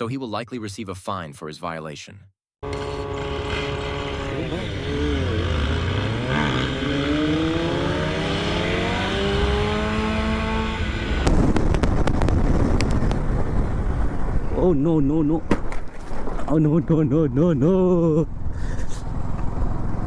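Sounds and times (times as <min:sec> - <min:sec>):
motorcycle engine accelerating: 0:02.6 - 0:14.4, 0:17.6 - 0:20.0
rough rushing noise with knocks: 0:11.2 - 0:13.6, 0:15.4 - 0:16.5.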